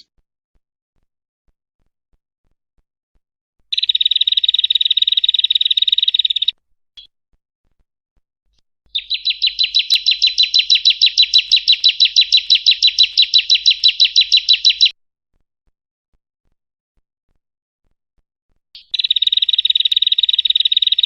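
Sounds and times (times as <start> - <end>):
small bird rapid trill: 3.7 - 7.1, 8.9 - 14.9, 18.8 - 21.0.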